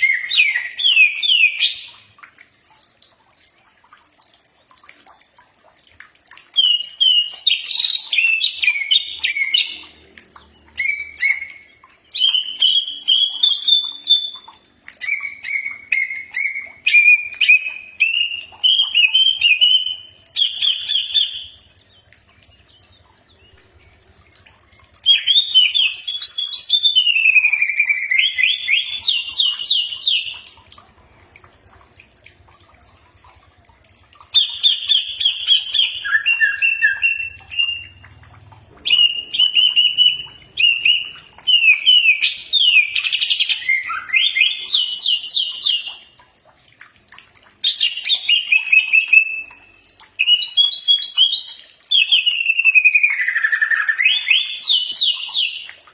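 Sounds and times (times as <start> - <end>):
bird singing high chirps: 10.8 - 21.6.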